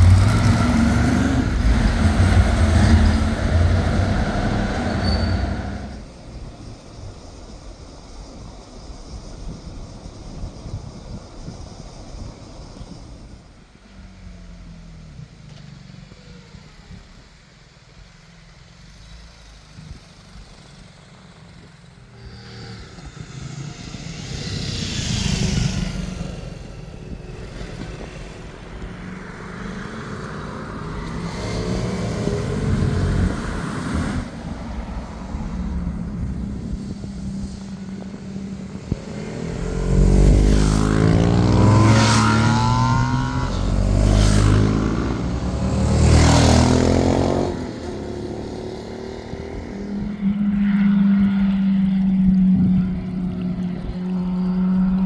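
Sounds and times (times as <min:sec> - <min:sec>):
motorcycles passing: 0:00.0 - 0:06.6, 0:19.4 - 0:55.0.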